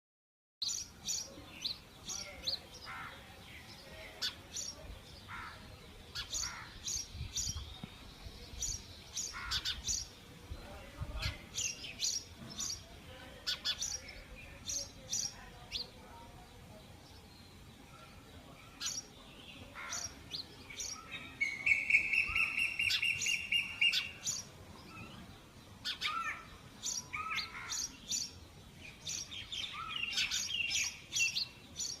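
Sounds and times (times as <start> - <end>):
sparrows chirping: 0.6 - 32.0.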